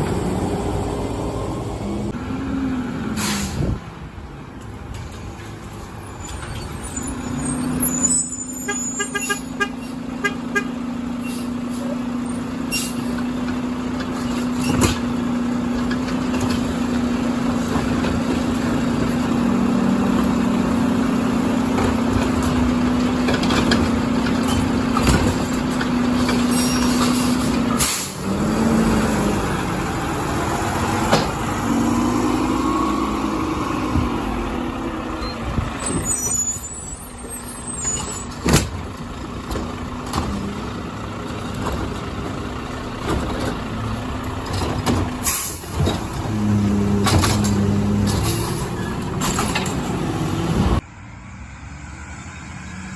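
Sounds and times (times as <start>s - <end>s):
truck engine droning: 0.0s - 4.9s, 5.7s - 52.9s
knocks and clanks: 21.7s - 27.9s, 43.0s - 46.3s, 46.9s - 50.0s.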